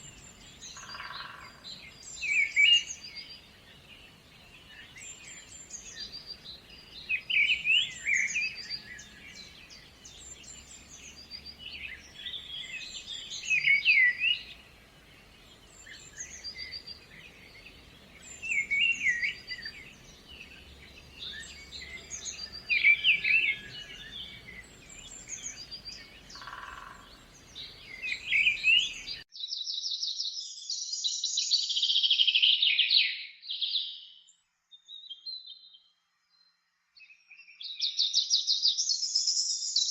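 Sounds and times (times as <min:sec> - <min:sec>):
rapid bird twittering: 0:00.0 - 0:03.5, 0:04.6 - 0:29.2
faint steady hiss: 0:00.0 - 0:29.2
songbirds chirping: 0:00.0 - 0:39.9.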